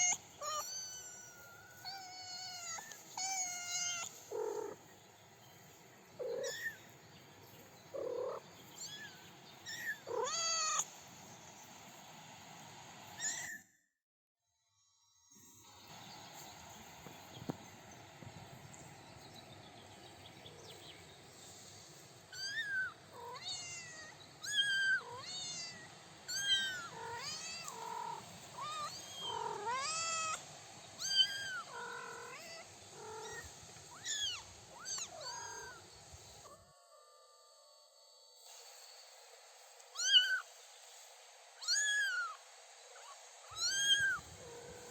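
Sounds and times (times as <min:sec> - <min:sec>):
kittens meowing: 0:00.0 - 0:04.8, 0:06.2 - 0:06.9, 0:08.0 - 0:10.9, 0:22.3 - 0:35.8, 0:40.0 - 0:40.5, 0:41.6 - 0:42.4, 0:43.0 - 0:44.9.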